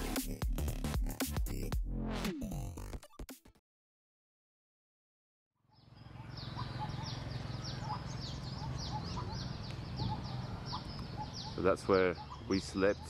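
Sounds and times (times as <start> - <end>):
small birds chirping: 5.6 - 13.0.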